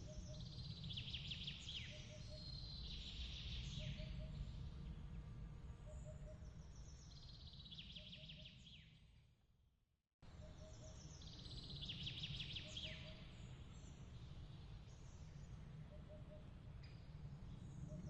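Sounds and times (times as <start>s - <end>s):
low steady rumble: 0.0s - 7.8s.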